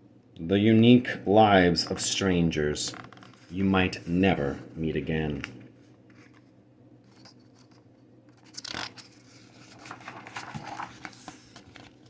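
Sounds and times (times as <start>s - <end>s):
paper page rustling: 7.1s - 12.0s.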